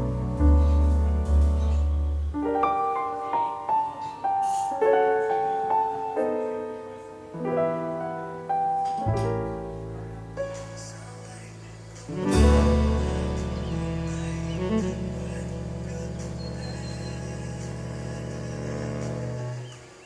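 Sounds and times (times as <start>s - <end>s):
slow gentle piano music: 0.0s - 20.0s.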